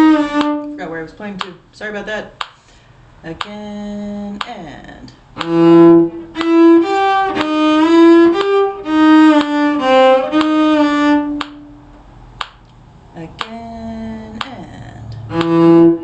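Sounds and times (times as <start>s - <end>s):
violin playing: 0.0s - 0.9s, 5.4s - 12.0s, 15.2s - 16.0s.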